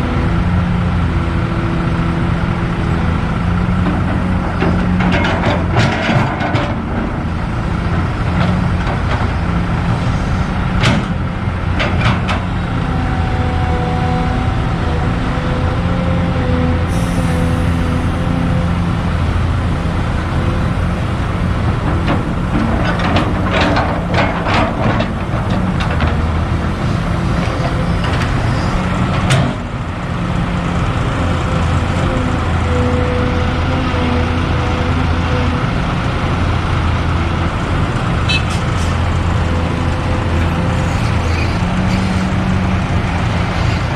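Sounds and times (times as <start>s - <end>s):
excavator diesel engine running: 0.0s - 43.9s
sharp knocks and clatters: 3.8s - 7.1s, 10.8s - 12.4s, 21.8s - 26.3s.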